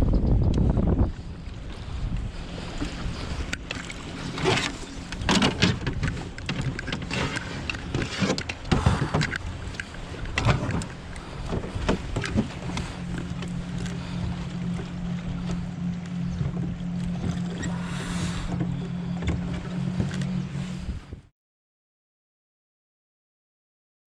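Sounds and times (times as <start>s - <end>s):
wind on microphone: 0.0s - 21.3s
water slapping against canoe hull: 1.7s - 20.3s.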